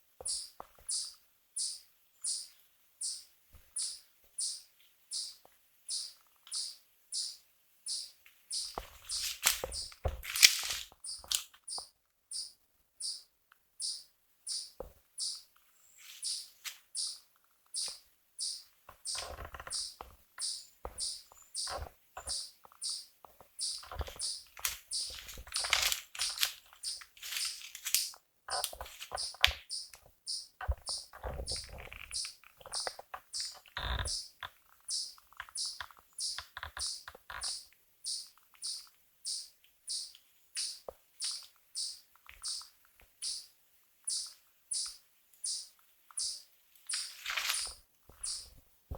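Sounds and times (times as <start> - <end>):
small animal chirping: 0.2 - 15.5, 16.1 - 43.5, 44.1 - 48.5
rustling: 8.6 - 11.6, 15.9 - 17.0, 23.3 - 30.1, 46.8 - 48.7.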